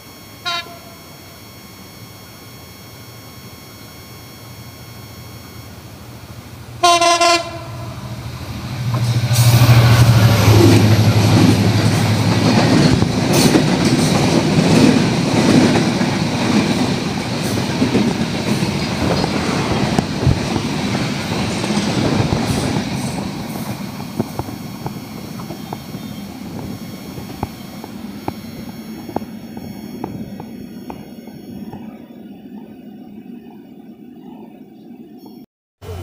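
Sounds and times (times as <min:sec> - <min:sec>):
locomotive engine hum: 0:00.0 - 0:36.0
train horn blast: 0:00.2 - 0:01.8, 0:06.8 - 0:13.6
train coaches clattering: 0:06.1 - 0:33.5.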